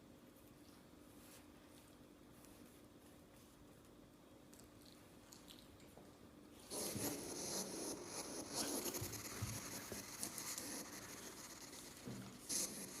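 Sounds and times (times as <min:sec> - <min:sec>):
scratching and rubbing: 0:06.7 - 0:13.0.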